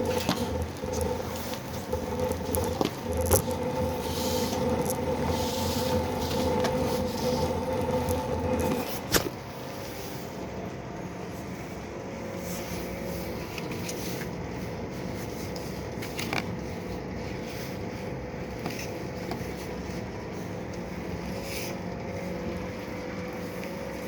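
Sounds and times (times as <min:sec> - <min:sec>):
slitter machine motor hum: 0:00.0 - 0:09.9.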